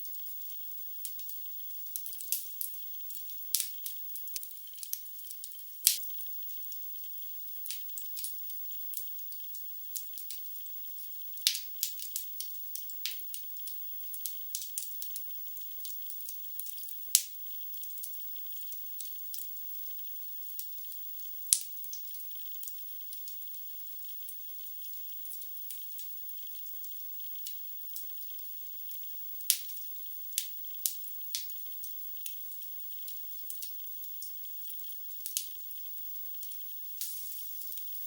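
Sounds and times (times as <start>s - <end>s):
fire snaps: 3.5s - 6.0s
logs crackling in fireplace: 3.5s - 6.0s.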